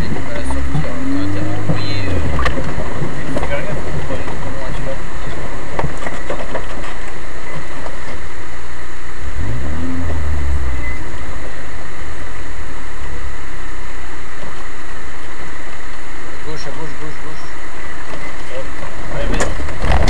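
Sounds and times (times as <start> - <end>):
off-road vehicle engine running: 0.0 - 20.0.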